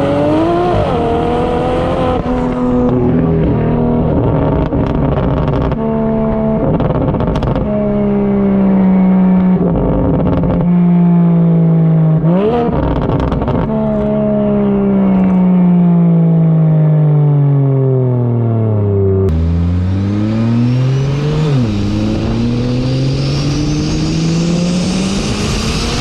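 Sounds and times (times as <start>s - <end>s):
car engine revving through gears: 0.0s - 16.6s, 19.2s - 26.0s.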